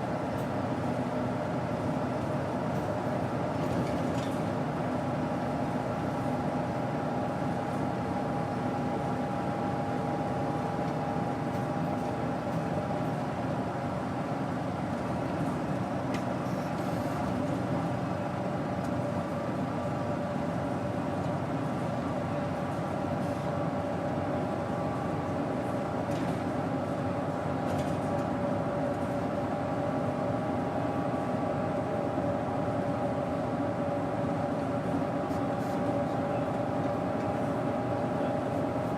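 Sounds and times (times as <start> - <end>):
bus engine running: 0.0 - 38.9.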